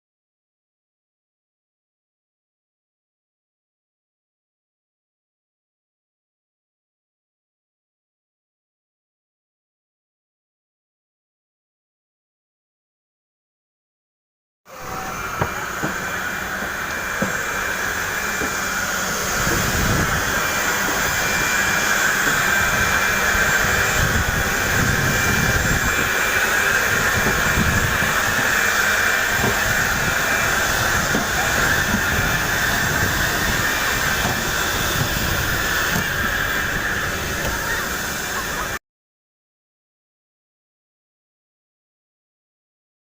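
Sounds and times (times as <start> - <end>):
airliner engine roar in cabin: 14.7 - 38.8.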